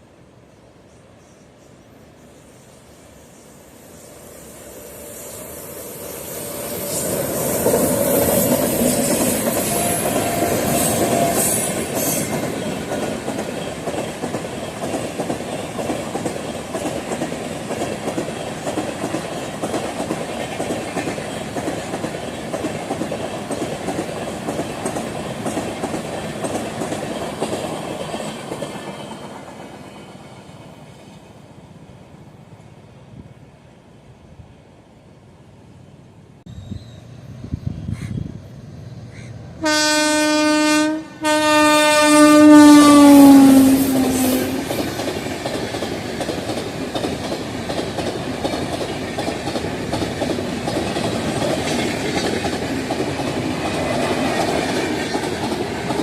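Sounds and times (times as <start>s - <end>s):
train wheels clattering over rail joints: 6.9s - 29.9s, 44.0s - 56.0s.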